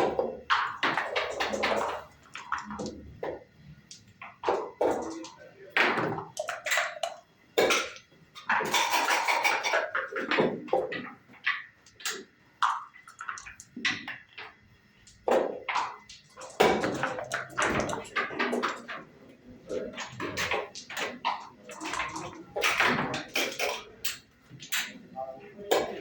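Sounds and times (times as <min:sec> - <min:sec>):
checkers clacking: 0:00.0 - 0:03.0.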